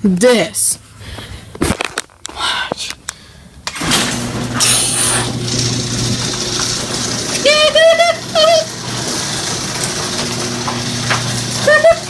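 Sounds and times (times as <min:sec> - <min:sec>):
garage door opener humming: 0:03.6 - 0:12.0.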